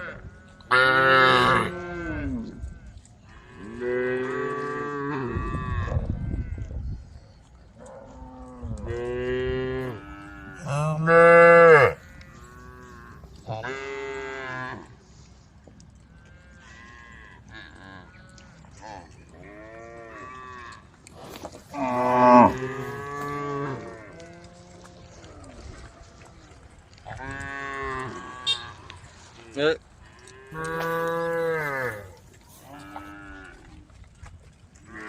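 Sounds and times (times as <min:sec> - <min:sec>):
cows mooing: 0:00.0 - 0:06.5, 0:07.9 - 0:15.0, 0:19.4 - 0:25.8, 0:27.1 - 0:29.1, 0:30.0 - 0:33.8.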